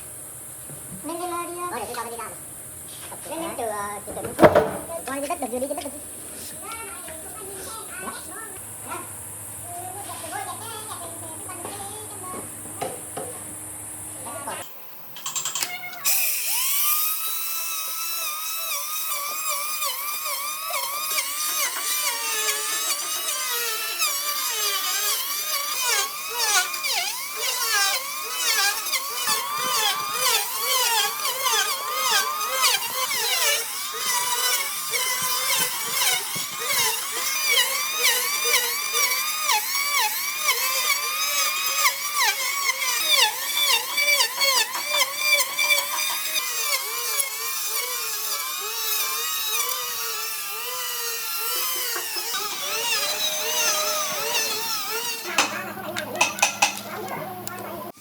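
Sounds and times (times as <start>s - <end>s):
power tool whining into wood: 14.6s - 58.0s.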